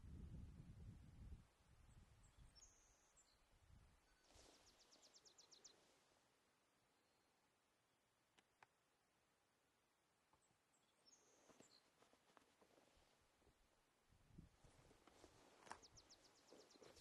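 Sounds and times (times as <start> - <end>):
faint songbird whistles and trill: 1.9 - 5.9, 10.7 - 11.9, 15.7 - 17.0.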